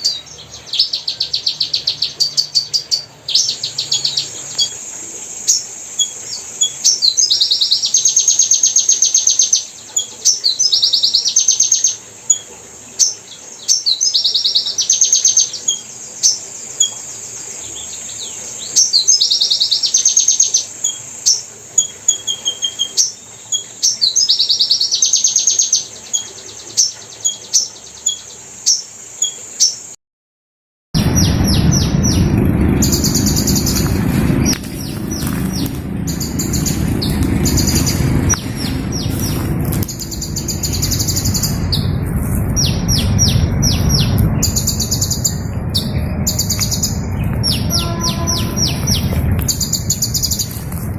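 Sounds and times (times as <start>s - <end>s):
hummingbird chirps and buzzy trill: 0.0s - 30.0s, 31.0s - 50.9s
steady high hiss: 0.0s - 30.0s, 31.0s - 50.9s.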